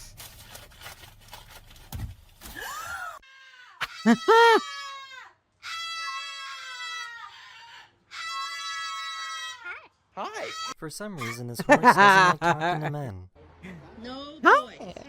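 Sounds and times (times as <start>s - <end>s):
animal crying out: 5.6s - 10.7s.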